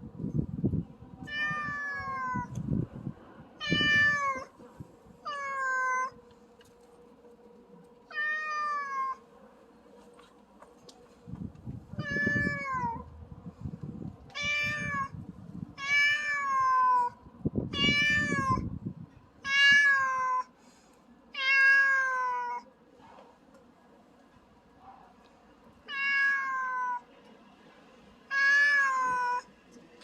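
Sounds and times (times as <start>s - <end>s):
cat meowing: 1.3s - 2.6s, 3.6s - 4.5s, 5.3s - 6.2s, 8.1s - 9.2s, 12.0s - 13.1s, 14.3s - 15.2s, 15.8s - 18.6s, 19.4s - 20.5s, 21.3s - 22.7s, 25.9s - 27.0s, 28.3s - 29.5s
low rumbling noise: 11.2s - 15.8s.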